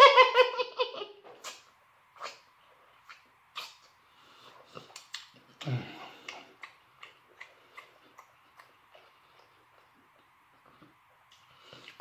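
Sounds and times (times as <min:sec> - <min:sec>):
wet chewing smacks and clicks: 0:03.0 - 0:04.0, 0:04.6 - 0:12.0.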